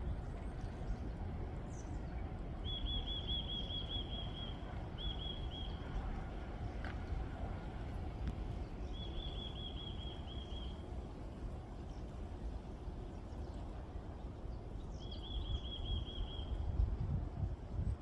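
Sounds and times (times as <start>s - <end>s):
wind rumbling on microphone: 10.8s - 18.0s.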